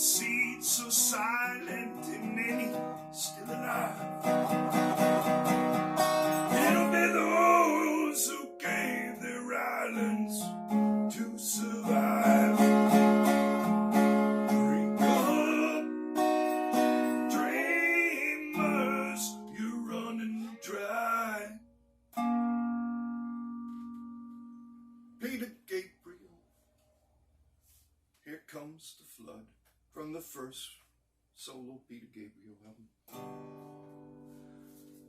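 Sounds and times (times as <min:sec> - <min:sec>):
acoustic guitar strumming chords: 0:00.0 - 0:25.4, 0:33.1 - 0:35.0.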